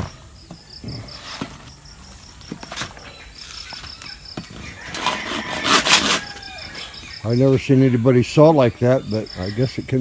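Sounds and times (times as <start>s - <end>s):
knocks and scrapes: 0.0s - 7.6s
hand saw rasping through wood: 4.9s - 6.4s.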